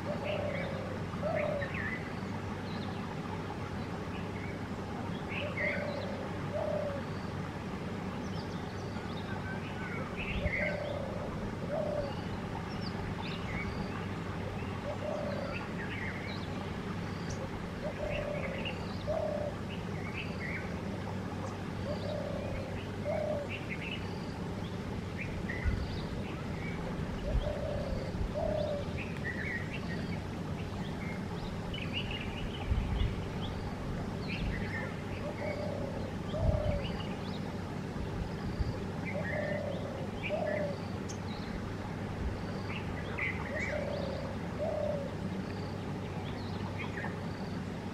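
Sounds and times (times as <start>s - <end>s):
bird low call: 0.0s - 3.1s, 4.2s - 7.4s, 8.2s - 47.7s.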